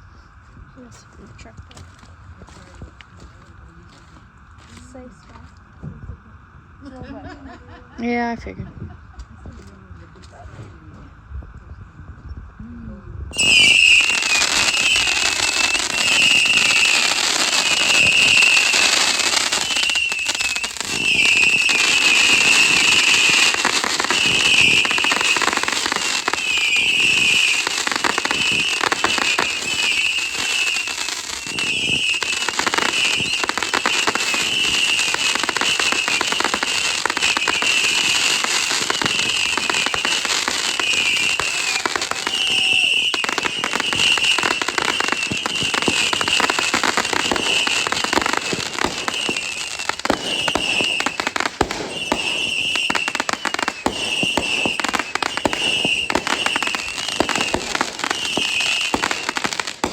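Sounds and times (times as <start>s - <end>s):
fireworks crackling: 0.8s - 11.2s, 13.3s - 59.9s
shrill firework whistling: 13.3s - 59.9s.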